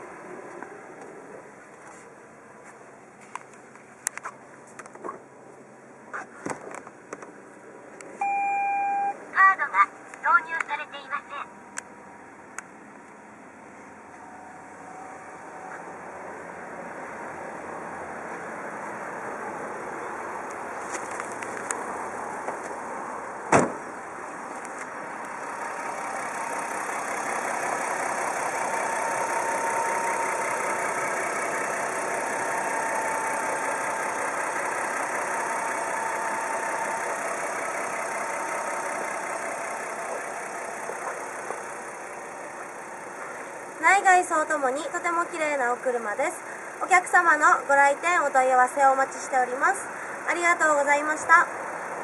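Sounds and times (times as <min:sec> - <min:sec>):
car engine idling: 0:11.5 - 0:52.0
sharp thump: 0:23.5 - 0:23.9.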